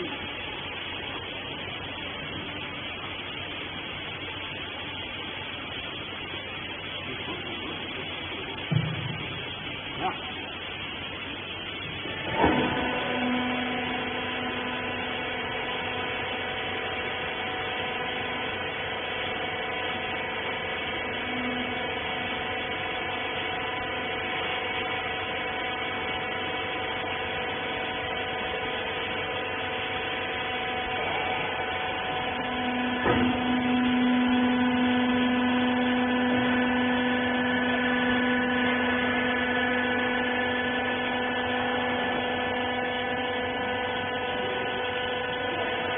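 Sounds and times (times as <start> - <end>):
electric motor and pump humming: 0.0 - 45.9.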